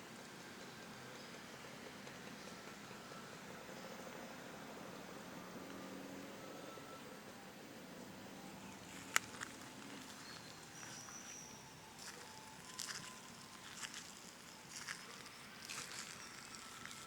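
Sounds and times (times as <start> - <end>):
faint outdoor ambience: 0.0 - 17.0.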